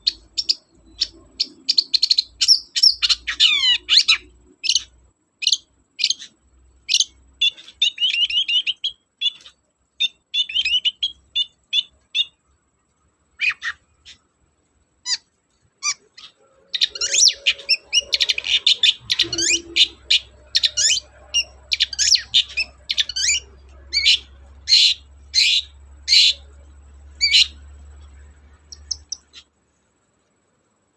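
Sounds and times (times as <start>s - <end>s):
bird chirping harshly: 0.0s - 12.4s, 13.4s - 14.2s, 15.0s - 26.6s, 27.2s - 29.5s.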